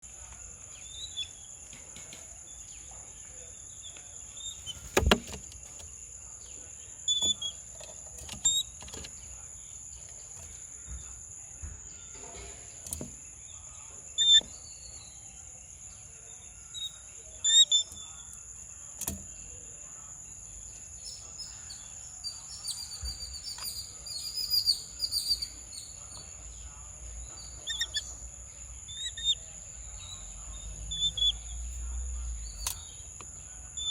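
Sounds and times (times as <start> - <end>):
small birds chirping: 0.0 - 33.9
sharp knocks: 4.8 - 5.5.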